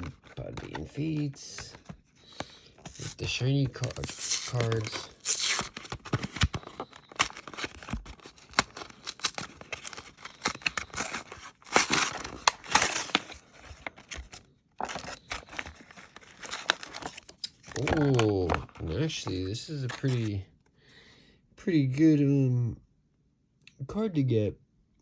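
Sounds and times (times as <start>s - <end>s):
plastic and foil packaging tearing: 2.4s - 20.4s.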